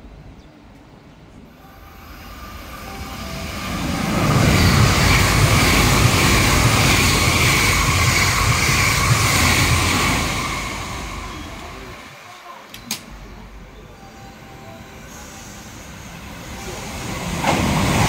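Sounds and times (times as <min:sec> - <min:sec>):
steady high tone: 0:01.5 - 0:18.0
train wheels rumbling on rails: 0:02.6 - 0:12.3, 0:15.4 - 0:18.0.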